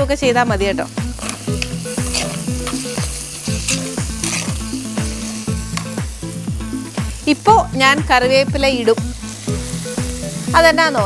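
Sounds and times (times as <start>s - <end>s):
background music beat: 0.0s - 11.0s
food sizzling in hot oil: 0.0s - 11.0s
spatula scraping pan: 1.2s - 5.5s.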